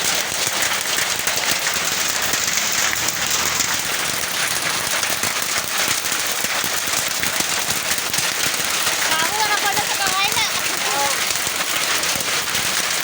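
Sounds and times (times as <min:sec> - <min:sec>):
hailstones striking hard surfaces: 0:00.0 - 0:13.0
heavy rain hiss: 0:00.0 - 0:13.0.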